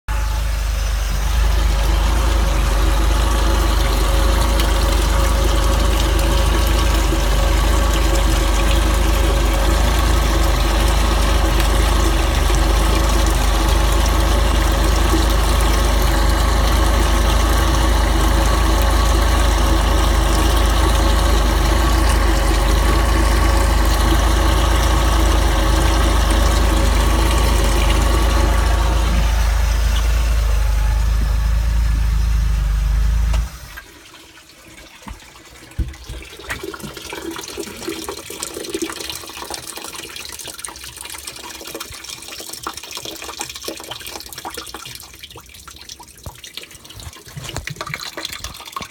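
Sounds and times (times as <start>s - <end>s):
boat engine idling: 0.1s - 33.7s.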